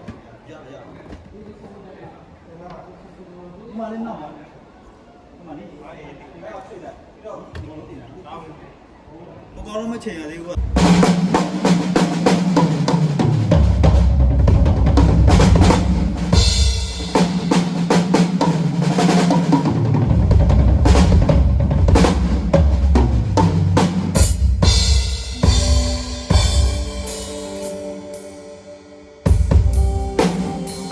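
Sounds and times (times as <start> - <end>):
drum kit beat: 10.6 - 30.9.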